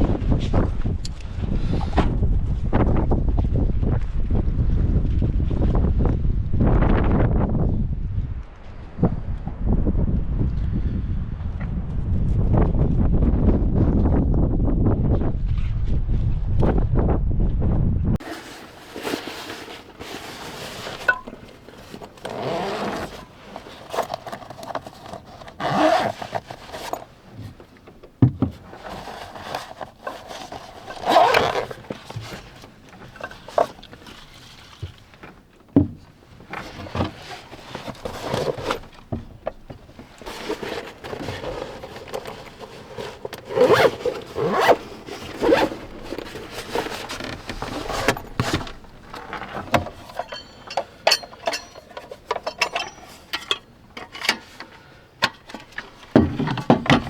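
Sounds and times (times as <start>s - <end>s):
gear rustling and scraping: 18.2s - 57.0s.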